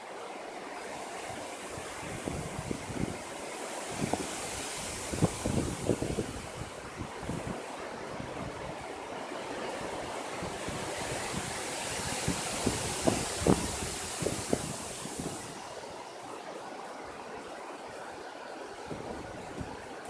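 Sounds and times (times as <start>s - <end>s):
wind gusts buffeting microphone: 0.9s - 20.0s
strong wind blowing: 1.3s - 16.0s.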